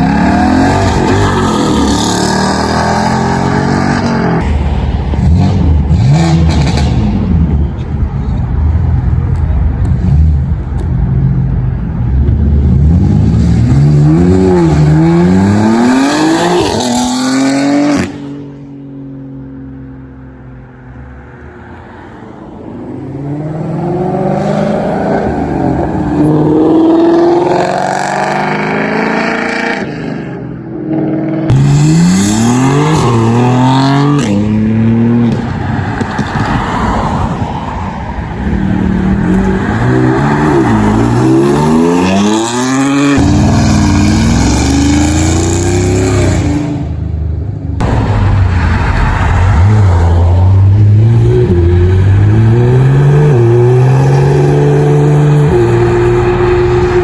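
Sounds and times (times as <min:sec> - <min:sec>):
car engines revving and accelerating: 0:00.0 - 0:57.0.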